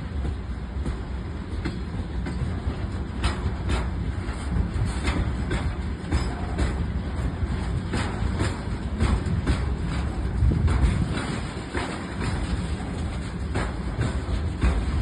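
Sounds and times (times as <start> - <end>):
train low rumble: 0.0 - 15.0
train wheels clacking over rail joints: 0.0 - 15.0.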